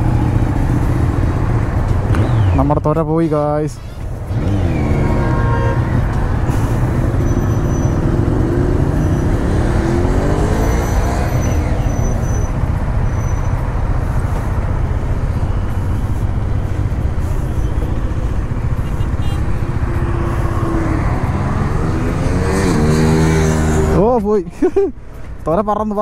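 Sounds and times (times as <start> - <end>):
motorcycle engine revving: 0.0 - 2.8, 4.2 - 12.5, 17.0 - 24.1.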